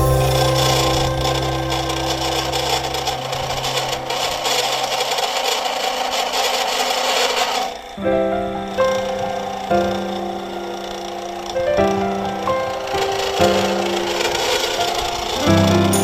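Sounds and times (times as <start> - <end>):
lathe cutting metal: 0.0 - 11.6, 12.4 - 16.0.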